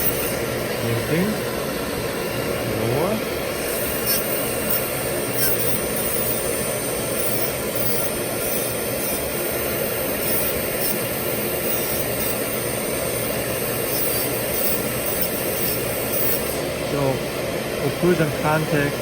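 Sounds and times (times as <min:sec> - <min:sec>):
dental handpiece grinding: 0:00.0 - 0:01.3, 0:03.5 - 0:16.7.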